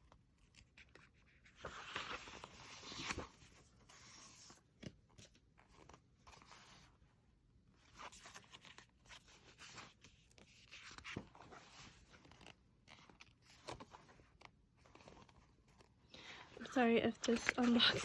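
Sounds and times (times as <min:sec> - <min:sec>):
paper pages rustling and tapping: 0:17.1 - 0:18.0.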